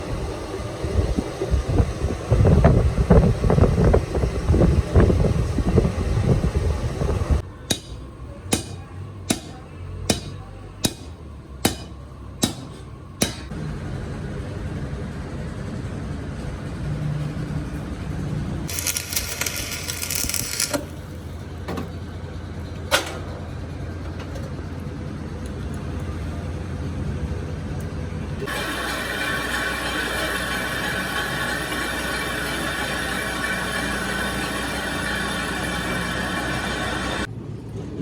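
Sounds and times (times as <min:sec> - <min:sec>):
steady low hum: 0:00.0 - 0:26.6, 0:28.1 - 0:38.0
sharp metallic knocks: 0:07.7 - 0:13.5
loud clattering machinery: 0:18.6 - 0:22.1, 0:28.4 - 0:37.3.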